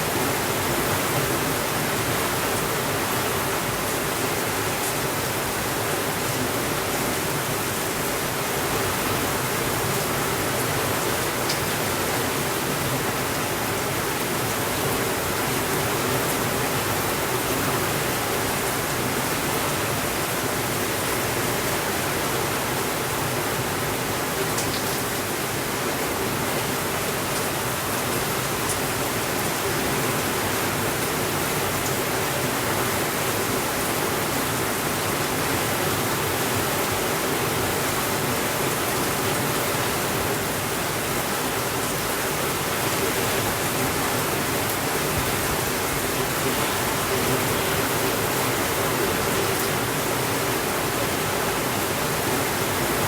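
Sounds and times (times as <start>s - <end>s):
steady rainfall: 0.0s - 53.0s.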